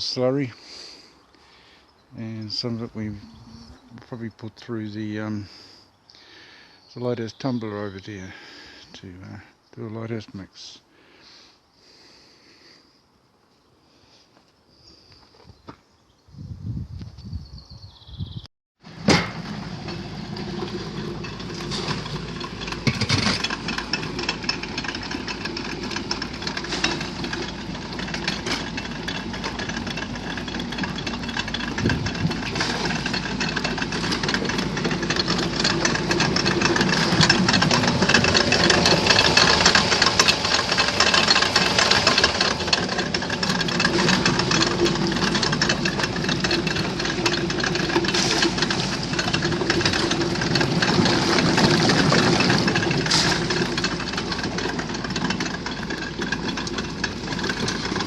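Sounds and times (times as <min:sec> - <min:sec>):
car engine running: 0:18.9 - 0:58.0.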